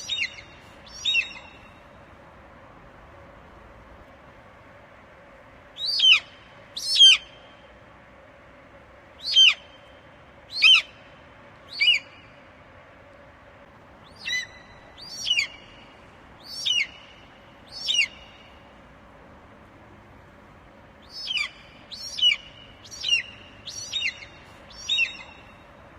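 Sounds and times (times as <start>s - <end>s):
eagle shrill calls: 0.0s - 1.7s, 5.8s - 7.4s, 9.2s - 9.8s, 10.5s - 11.0s, 11.7s - 12.3s, 14.1s - 15.8s, 16.4s - 18.4s, 21.0s - 25.6s.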